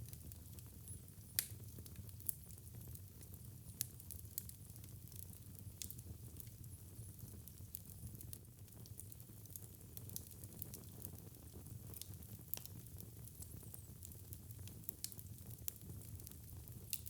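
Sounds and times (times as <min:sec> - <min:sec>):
low rumble of burning fire: 0:00.0 - 0:17.0
wood fire crackling: 0:00.0 - 0:17.0
sharp pops and clicks of fire: 0:11.9 - 0:17.0.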